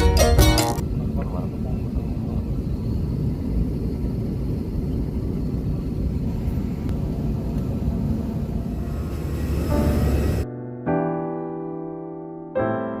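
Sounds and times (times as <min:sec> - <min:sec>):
airliner cabin engine rumble: 0:00.8 - 0:10.5.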